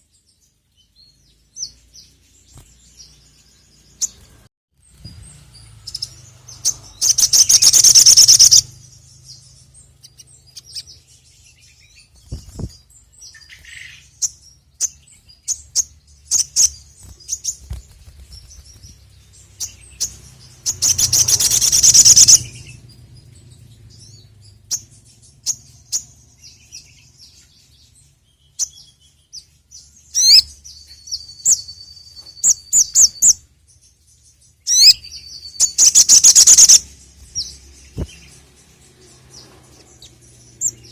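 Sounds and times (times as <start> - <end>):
bird chirps: 0.0 - 40.9
bird trilling: 5.9 - 11.0, 19.6 - 22.8, 34.7 - 38.4.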